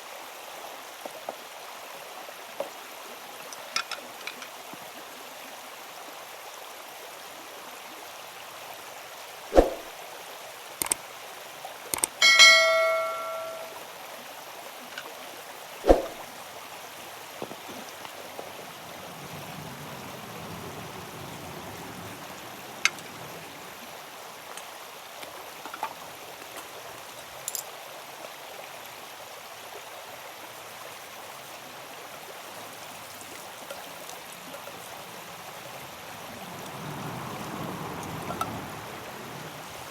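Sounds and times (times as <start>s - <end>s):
flowing water rushing: 0.0s - 39.9s
metal object ringing like a bell: 12.2s - 13.8s.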